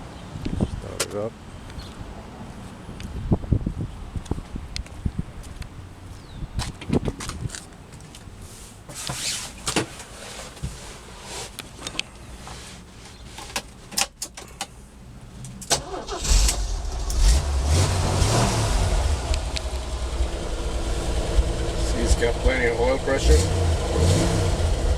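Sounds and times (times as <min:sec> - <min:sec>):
car engine starting and idling: 0:14.3 - 0:24.9.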